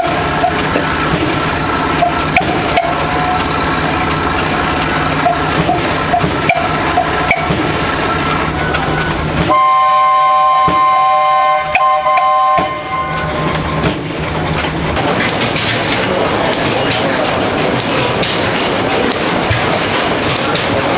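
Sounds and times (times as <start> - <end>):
old stationary engines running: 0.0 - 20.9
loud steady whistle: 6.5 - 13.3.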